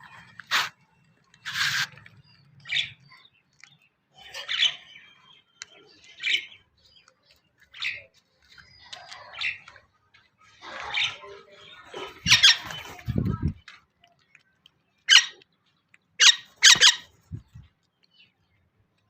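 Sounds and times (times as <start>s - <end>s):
bird harsh calls: 1.4s - 3.2s, 10.8s - 13.3s, 15.1s - 15.4s, 16.2s - 17.6s.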